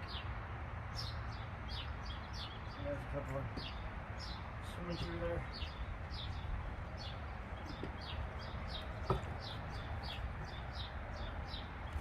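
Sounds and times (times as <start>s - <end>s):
songbird chirping: 0.0s - 12.0s.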